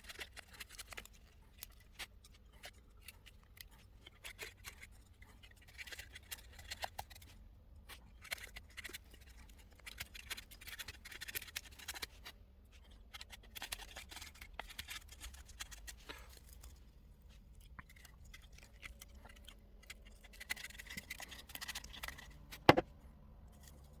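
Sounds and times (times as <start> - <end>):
knife scraping wood: 17.7 - 22.9.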